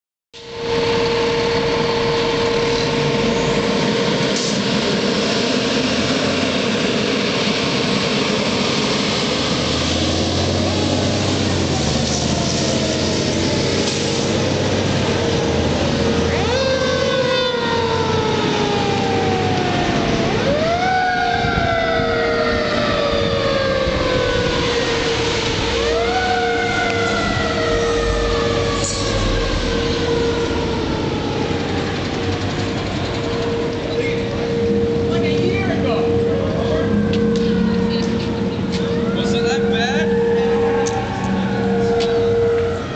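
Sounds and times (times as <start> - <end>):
fire engine running: 0.4 - 42.9
siren wailing: 0.4 - 42.9.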